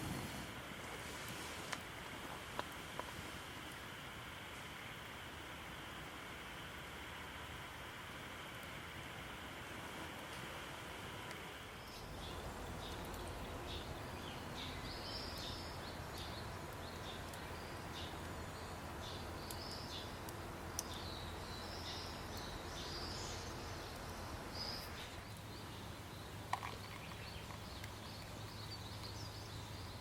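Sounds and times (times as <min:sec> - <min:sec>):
steady background hiss: 0:00.0 - 0:30.0
small birds chirping: 0:11.7 - 0:30.0.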